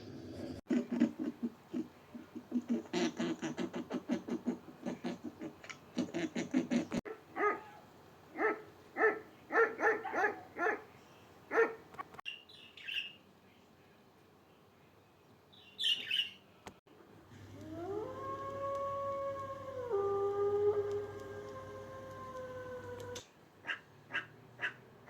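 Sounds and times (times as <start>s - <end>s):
low repeated animal calls: 0.6s - 7.8s, 17.4s - 24.8s.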